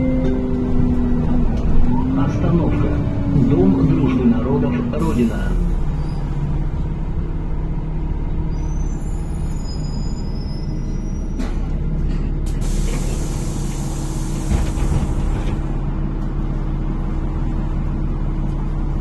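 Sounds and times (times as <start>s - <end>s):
bus engine and road noise: 0.0s - 19.0s
faint high squeals: 8.5s - 11.4s.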